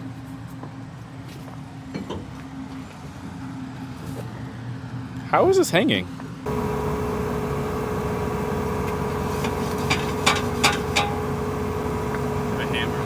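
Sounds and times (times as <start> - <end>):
heavy engine idling with whine: 6.5 - 13.0
sharp metallic knocks: 8.9 - 12.3.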